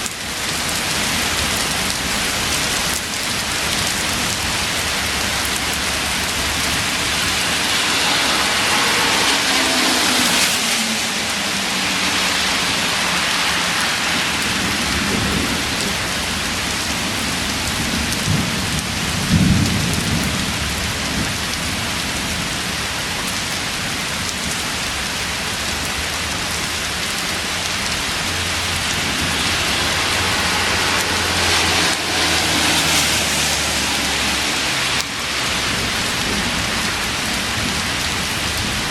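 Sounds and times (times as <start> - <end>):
heavy rain pouring: 0.0 - 38.9
thunder rumble: 1.2 - 22.4.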